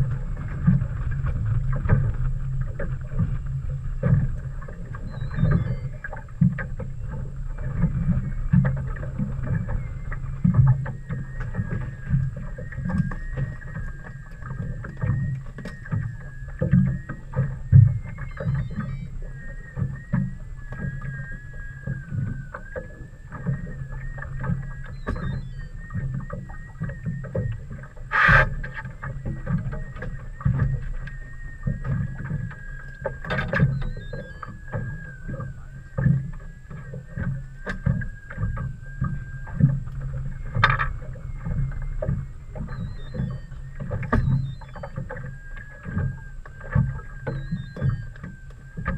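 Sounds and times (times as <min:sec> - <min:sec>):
steady low hum: 0:00.0 - 0:48.9
thin wavering whine: 0:00.0 - 0:48.9
water slapping against boat hull: 0:00.0 - 0:48.9.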